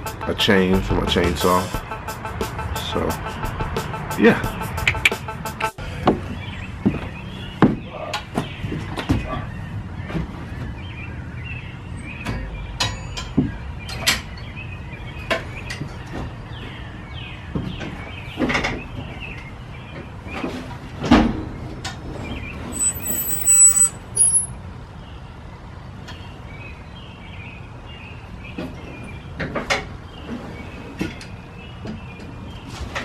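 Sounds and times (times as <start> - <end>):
bright metallic jingle: 22.8 - 24.5.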